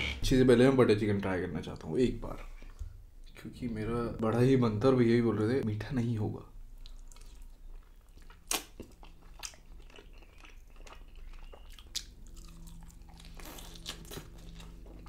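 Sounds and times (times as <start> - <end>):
wet mouth smacks: 8.3 - 9.0
crunchy biting snaps: 8.3 - 9.6.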